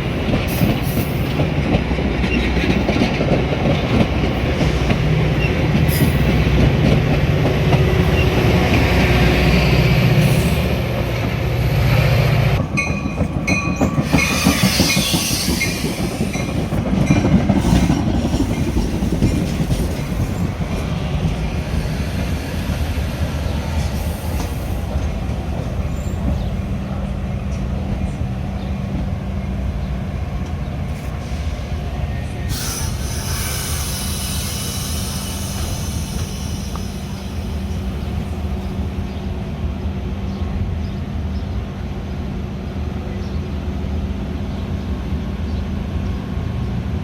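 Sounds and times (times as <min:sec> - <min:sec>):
train rumbling on rails: 0:00.0 - 0:47.0
train wheels squealing: 0:12.8 - 0:26.5, 0:31.1 - 0:38.7
high hiss: 0:32.4 - 0:38.3.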